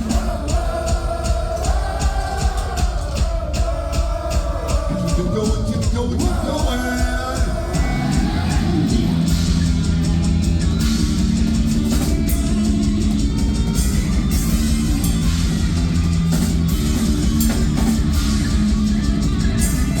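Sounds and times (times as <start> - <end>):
bass guitar: 0.0 - 20.0
drum kit with crashing cymbals: 0.0 - 20.0
distorted electric guitar: 6.7 - 20.0.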